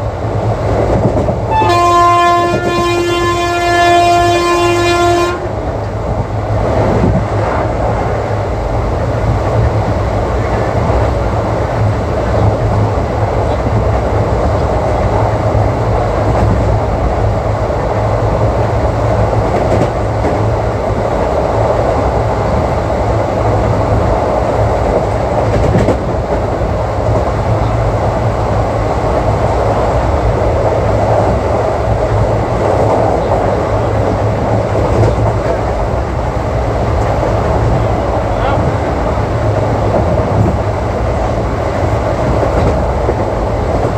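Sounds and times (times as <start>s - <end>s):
train wheels rumbling on track: 0.0s - 43.9s
clatter over rail joints: 19.4s - 20.6s, 24.8s - 27.8s, 32.6s - 35.9s, 42.2s - 43.9s.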